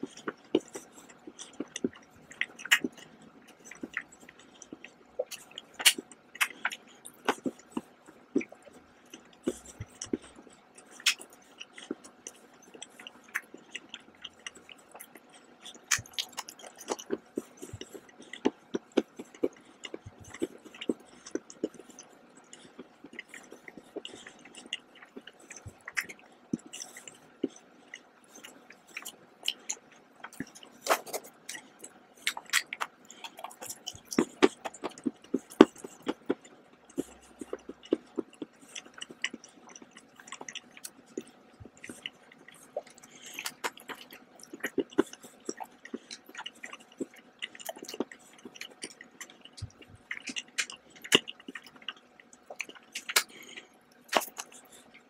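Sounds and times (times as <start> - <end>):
person chewing chocolate: 0.0 - 55.0.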